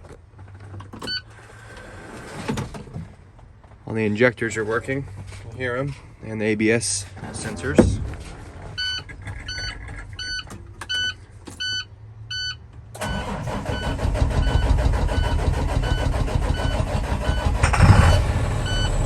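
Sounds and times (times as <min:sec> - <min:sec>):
diesel engine starting and running: 0:07.1 - 0:19.0.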